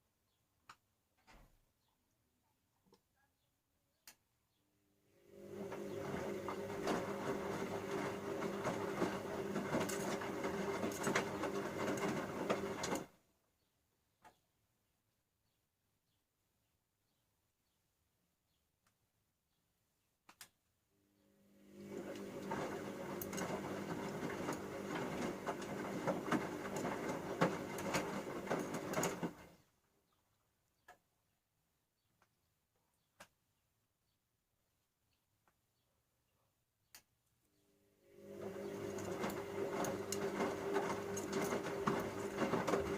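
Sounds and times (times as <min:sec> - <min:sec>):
washing machine motor hum: 0:05.2 - 0:13.2, 0:21.2 - 0:29.6, 0:38.0 - 0:42.9
laundry and water sloshing in drum: 0:05.5 - 0:13.1, 0:21.9 - 0:29.5, 0:38.4 - 0:42.9
motor hum: 0:38.0 - 0:42.9
washing machine drum turning: 0:38.4 - 0:42.9.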